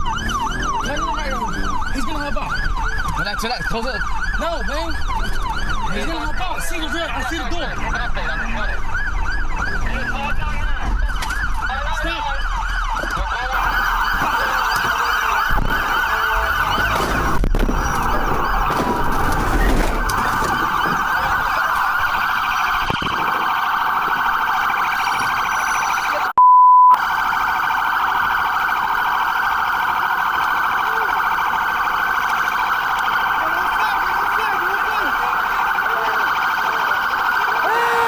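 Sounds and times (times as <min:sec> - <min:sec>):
police siren wailing: 0:00.0 - 0:38.0
censor bleep: 0:25.6 - 0:27.0.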